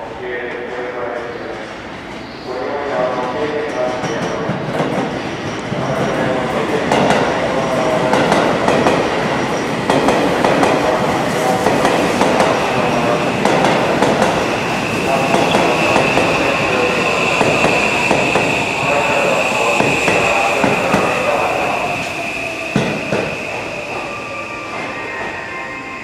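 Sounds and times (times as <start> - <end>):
train wheels squealing: 12.6 - 26.0.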